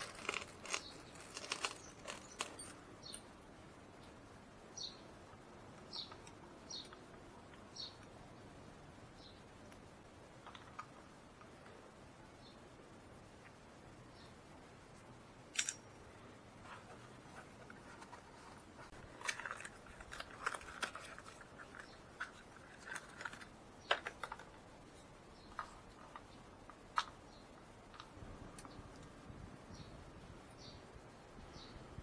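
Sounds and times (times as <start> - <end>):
small objects clicking and clinking: 0.0 - 3.3, 15.5 - 15.9.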